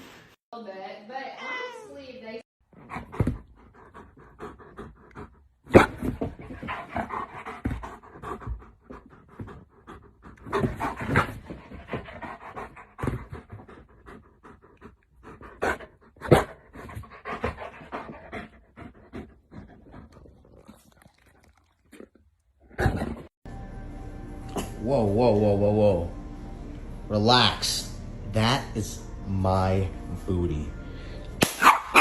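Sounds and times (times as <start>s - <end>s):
dog panting: 2.7s - 20.7s.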